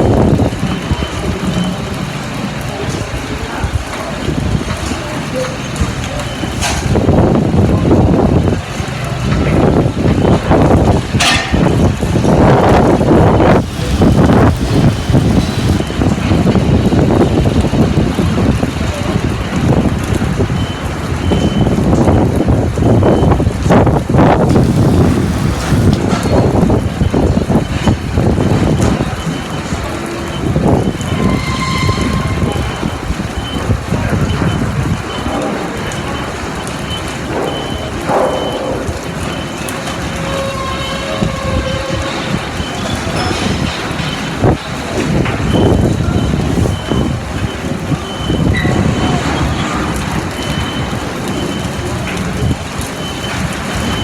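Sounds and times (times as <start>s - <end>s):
faint held tone: 13.5s - 15.8s, 24.5s - 26.0s.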